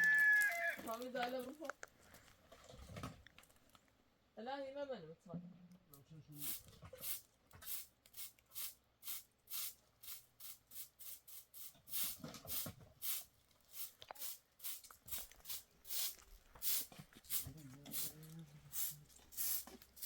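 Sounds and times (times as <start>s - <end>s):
regular hissing strokes: 6.4s - 20.0s.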